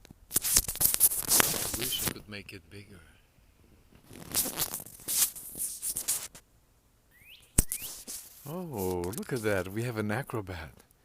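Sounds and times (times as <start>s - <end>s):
rustling and scraping: 0.3s - 2.2s, 3.9s - 6.4s, 7.6s - 9.8s
bird chirps gliding upward: 7.1s - 8.0s
sharp click: 7.5s - 8.1s.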